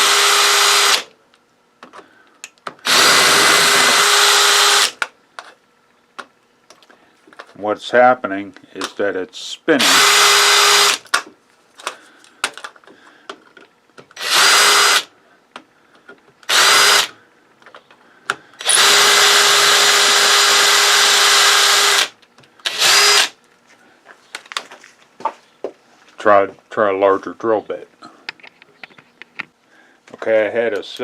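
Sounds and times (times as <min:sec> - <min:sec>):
electric drill motor whine: 0:00.0 - 0:01.1, 0:02.8 - 0:05.0, 0:09.8 - 0:11.0, 0:14.2 - 0:15.1, 0:16.5 - 0:17.2, 0:18.6 - 0:23.4.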